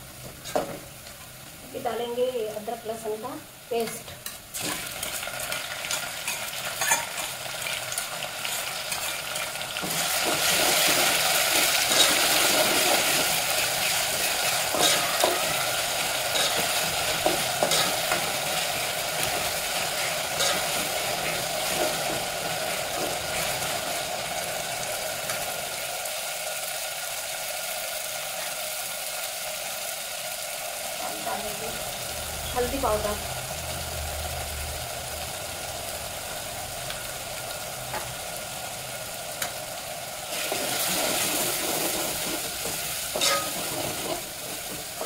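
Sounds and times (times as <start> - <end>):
onions sizzling in hot oil: 0.0 - 45.0
spoon scraping against pot: 6.3 - 7.3.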